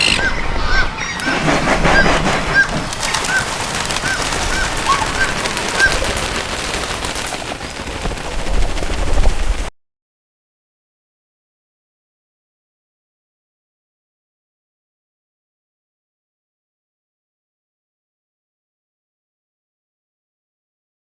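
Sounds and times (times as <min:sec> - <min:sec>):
scattered clicks: 0:00.0 - 0:00.3
bird chirping: 0:00.0 - 0:01.4
loud noisy background: 0:00.0 - 0:08.4.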